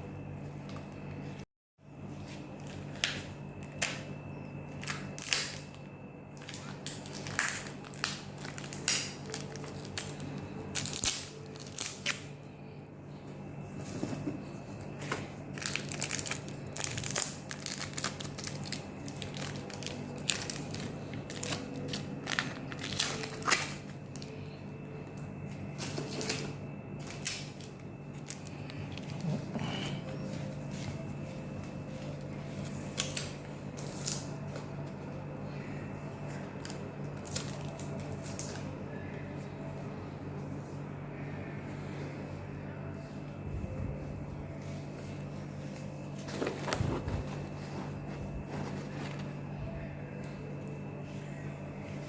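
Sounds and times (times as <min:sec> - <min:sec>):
low hum: 0:00.0 - 0:52.0
packaging crinkling: 0:06.4 - 0:12.3, 0:15.5 - 0:24.4, 0:25.8 - 0:29.5.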